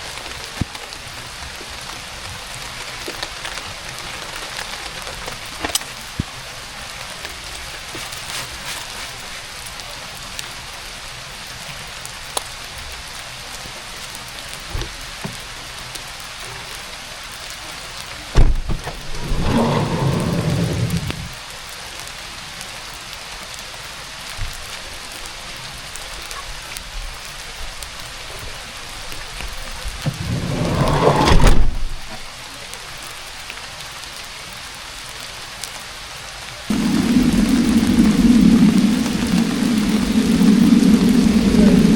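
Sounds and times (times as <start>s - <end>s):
heavy rain falling: 0.0s - 41.9s
low rumbles: 18.4s - 21.4s, 29.6s - 32.3s, 36.7s - 41.9s.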